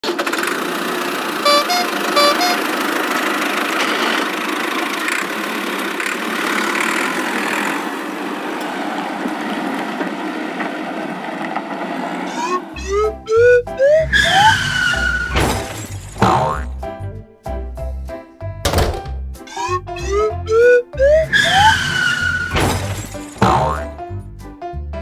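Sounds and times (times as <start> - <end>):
vehicle engine running: 0.0 - 8.5, 12.8 - 18.0, 19.7 - 24.3
two-note horn toots: 1.4 - 2.8.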